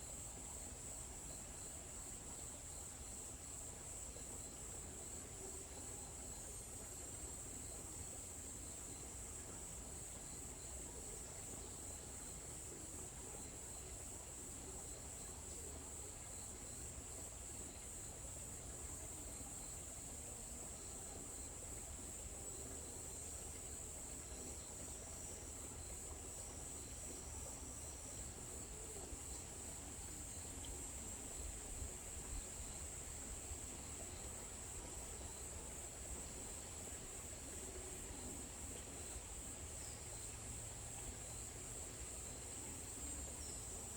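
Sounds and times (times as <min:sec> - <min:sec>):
high-pitched insect chorus: 0:20.7 - 0:43.9.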